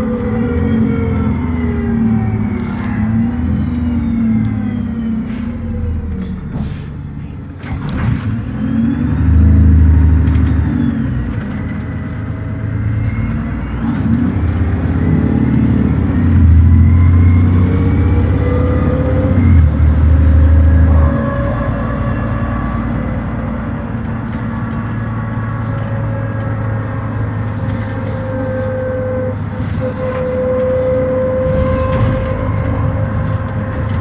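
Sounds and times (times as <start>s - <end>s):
bus engine revving hard: 0.0s - 34.0s.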